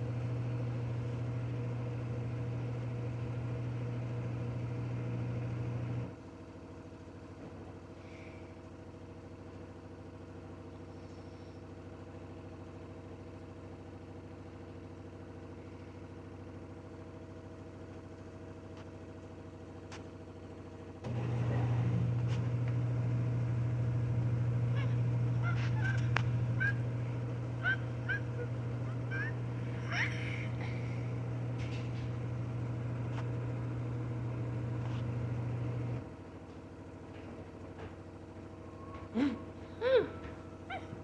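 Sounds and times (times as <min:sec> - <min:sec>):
washing machine spinning: 0:00.0 - 0:06.2, 0:21.0 - 0:38.8
deep motor hum: 0:21.0 - 0:36.1.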